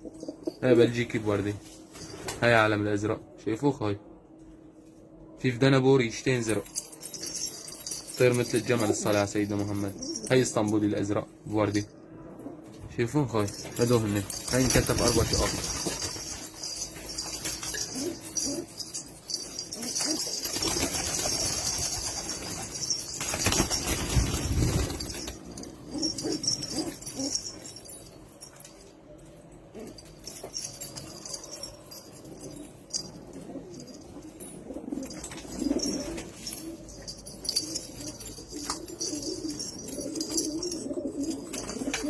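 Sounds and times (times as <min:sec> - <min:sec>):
wings flapping: 0:19.8 - 0:25.4
pigeons cooing: 0:25.6 - 0:27.5, 0:33.2 - 0:42.0.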